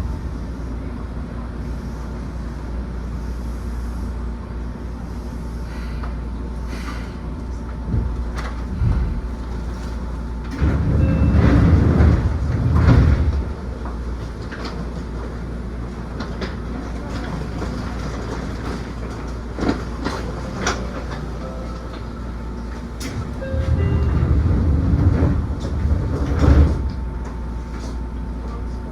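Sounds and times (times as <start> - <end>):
train low rumble: 0.0 - 28.9
wheels clicking over rail joints: 8.0 - 22.0.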